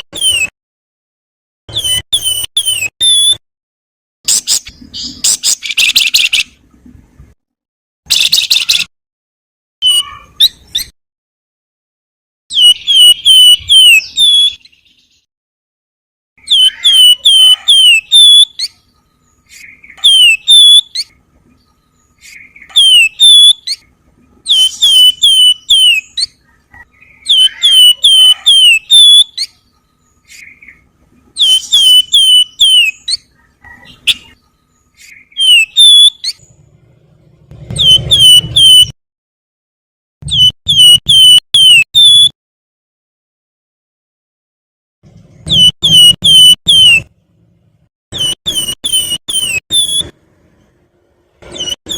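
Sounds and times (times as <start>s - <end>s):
songbird whistling: 1.7s - 3.4s, 12.5s - 15.2s, 16.4s - 18.8s, 19.4s - 21.2s, 22.2s - 29.6s, 31.4s - 34.4s, 35.0s - 36.5s, 37.7s - 39.0s, 40.3s - 42.3s, 45.5s - 47.1s, 48.2s - 50.2s, 51.5s - 51.9s.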